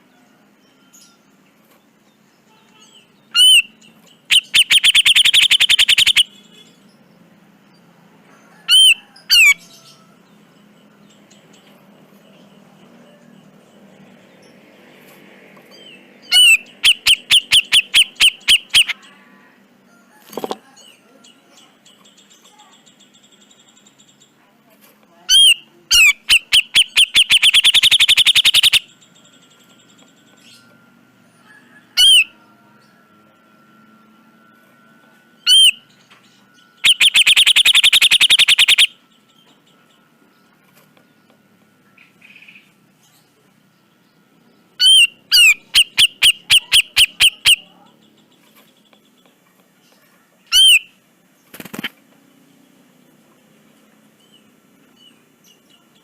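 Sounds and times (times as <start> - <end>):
bulbul calling: 3.3 - 6.4, 16.2 - 19.1, 25.3 - 28.9, 35.5 - 35.8, 36.8 - 39.0, 44.8 - 47.9, 50.5 - 51.0.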